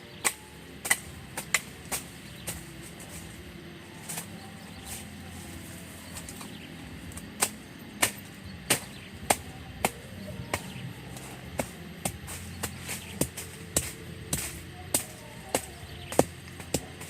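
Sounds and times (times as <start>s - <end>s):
axe chopping wood: 0.2s - 3.1s, 7.1s - 17.0s.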